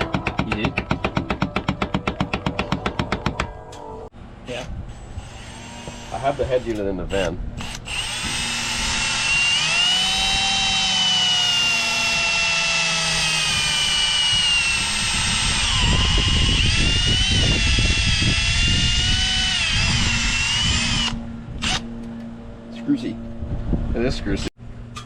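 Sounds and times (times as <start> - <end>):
electric power drill whining: 7.6 - 21.9.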